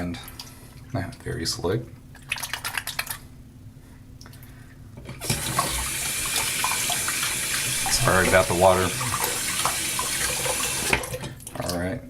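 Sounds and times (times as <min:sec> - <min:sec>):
tap water running into sink: 0:05.2 - 0:11.4.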